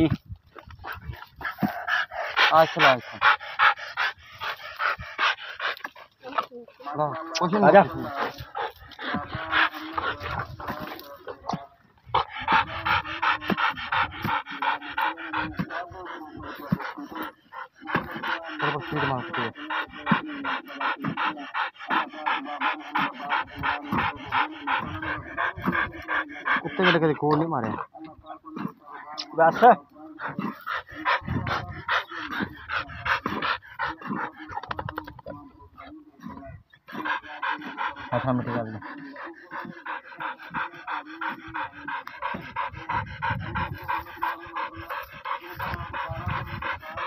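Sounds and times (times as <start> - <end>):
dog panting: 0.0 - 47.0
low rumbling digging noise: 7.7 - 20.2, 39.4 - 47.0.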